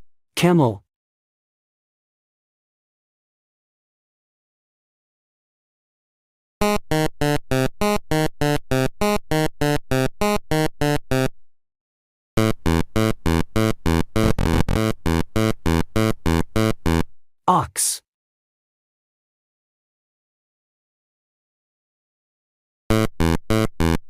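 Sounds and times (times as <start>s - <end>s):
repeated synthesized pitched note: 12.4s - 15.5s.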